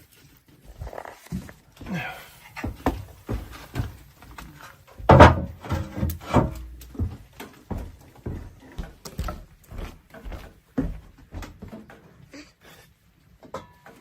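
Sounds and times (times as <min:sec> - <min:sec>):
knocks and clatters: 0:02.6 - 0:08.0.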